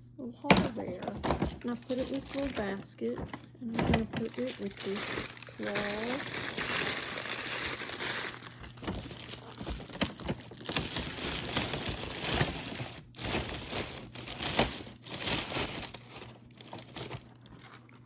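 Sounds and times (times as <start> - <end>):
packaging crinkling and rustling: 0.4 - 18.0.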